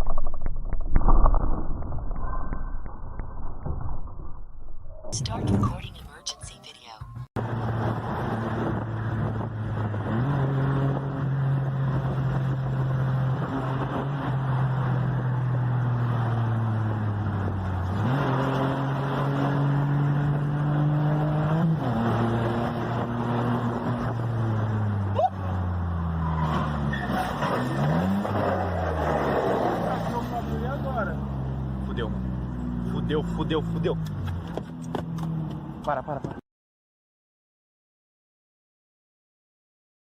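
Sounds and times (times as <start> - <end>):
car engine revving: 7.4 - 35.8.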